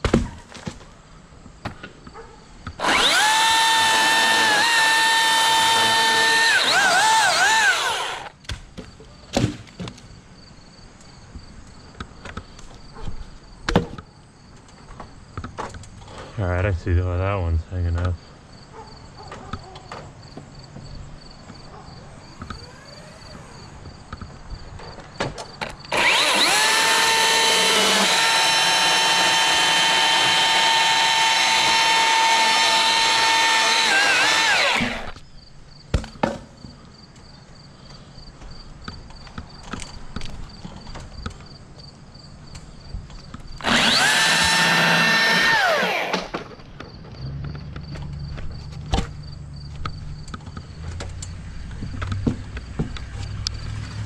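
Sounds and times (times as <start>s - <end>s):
chainsaw cutting wood: 2.7s - 8.4s, 25.9s - 35.2s, 43.6s - 46.5s.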